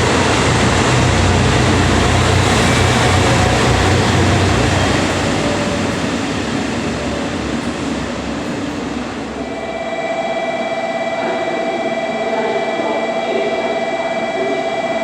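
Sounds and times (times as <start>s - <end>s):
train rushing rumble: 0.0s - 15.0s
high ringing tone: 9.4s - 15.0s.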